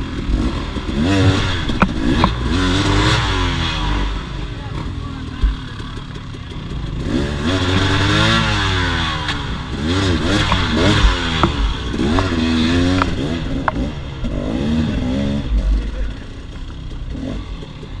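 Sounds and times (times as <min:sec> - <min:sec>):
motorcycle engine revving: 0:00.0 - 0:18.0
sharp ticks: 0:01.6 - 0:02.4, 0:10.4 - 0:14.4.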